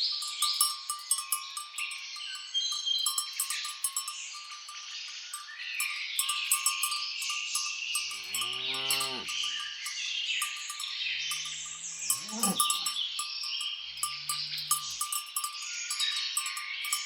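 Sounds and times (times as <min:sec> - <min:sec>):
birds chirping: 0:07.2 - 0:17.0
insects trilling: 0:08.0 - 0:09.6, 0:10.8 - 0:16.1
cows mooing: 0:08.1 - 0:09.4, 0:11.2 - 0:13.0, 0:13.9 - 0:15.2.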